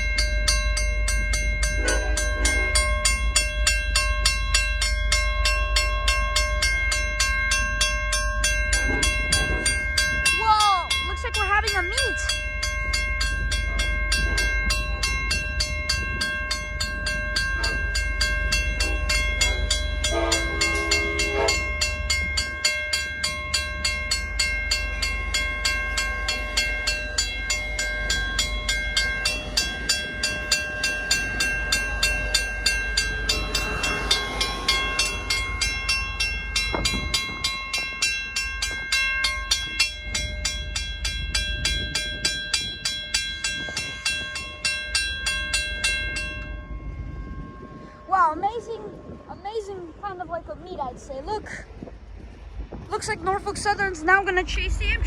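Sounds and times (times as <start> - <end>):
rumble of passing trains: 0.0 - 55.0
train horn blast: 19.5 - 22.0.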